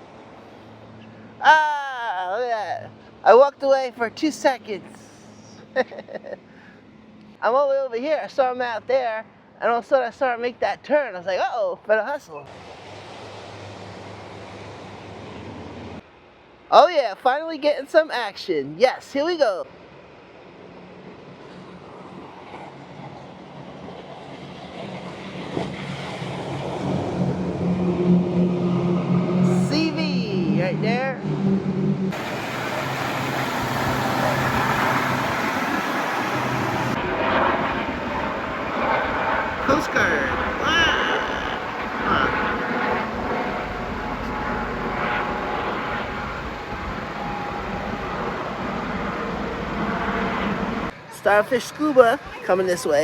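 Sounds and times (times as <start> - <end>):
water rushing: 12.5 - 16.0, 32.1 - 53.0
motorboat engines droning: 25.2 - 53.0.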